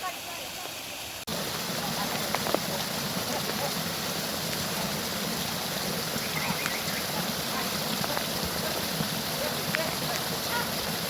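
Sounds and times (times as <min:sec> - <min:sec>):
heavy rain hissing: 0:00.0 - 0:11.0
faint ticks of raindrops: 0:01.9 - 0:03.7, 0:04.4 - 0:04.8, 0:06.2 - 0:07.0, 0:08.0 - 0:08.7, 0:09.6 - 0:10.3.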